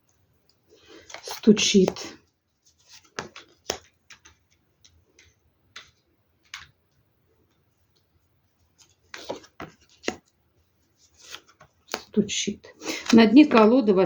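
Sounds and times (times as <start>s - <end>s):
cards tapping on a table: 9.2s - 10.2s.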